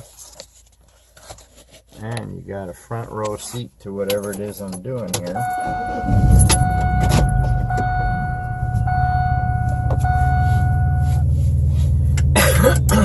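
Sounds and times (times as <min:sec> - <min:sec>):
high electronic tone: 0:05.4 - 0:11.3
vehicle engine idling: 0:05.4 - 0:13.0.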